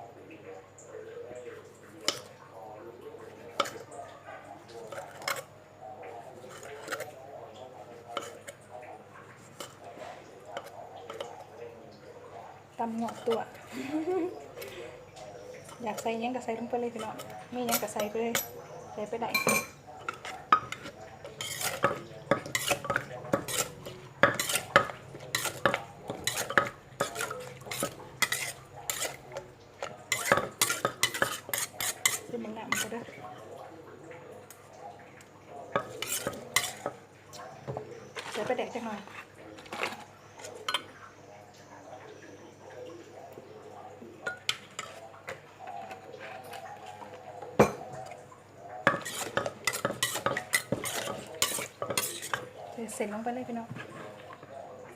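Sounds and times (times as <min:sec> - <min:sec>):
spoon clinking against mortar: 0:16.9 - 0:18.6, 0:19.3 - 0:33.2, 0:35.7 - 0:38.6, 0:44.2 - 0:45.0, 0:48.8 - 0:52.5.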